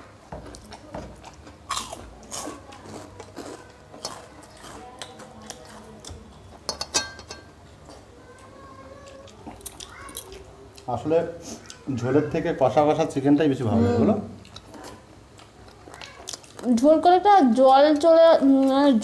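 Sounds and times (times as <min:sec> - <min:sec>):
chewing and mouth smacks: 0:09.0 - 0:10.9, 0:14.4 - 0:16.9.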